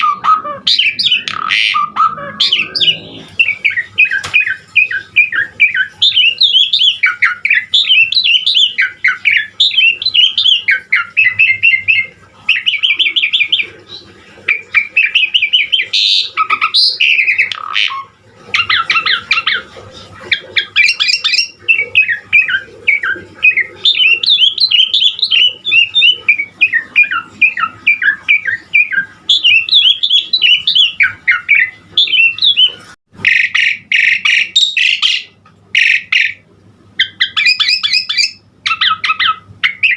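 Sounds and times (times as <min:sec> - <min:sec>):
harsh bird squawks: 0:00.0 - 0:39.9
starling singing and chattering: 0:00.0 - 0:39.9.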